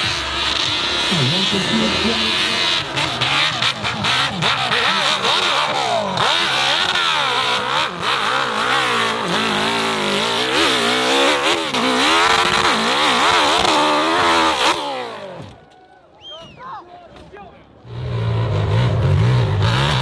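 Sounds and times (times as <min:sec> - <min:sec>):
motorcycle engine revving: 0:00.0 - 0:15.4.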